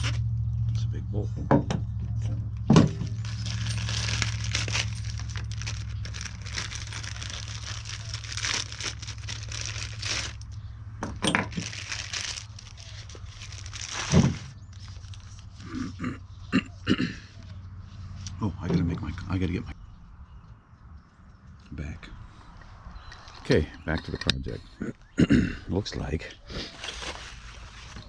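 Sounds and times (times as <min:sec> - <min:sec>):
plastic packaging crinkling: 0:02.8 - 0:10.6, 0:11.4 - 0:15.7, 0:26.6 - 0:28.0.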